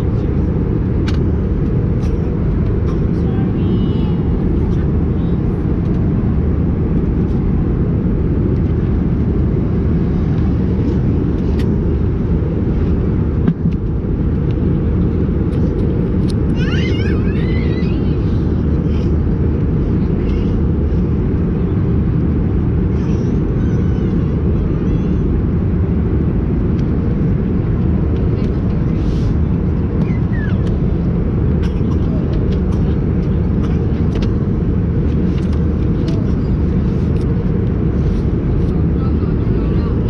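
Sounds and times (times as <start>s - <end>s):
airplane cabin engine rumble: 0.0s - 40.0s.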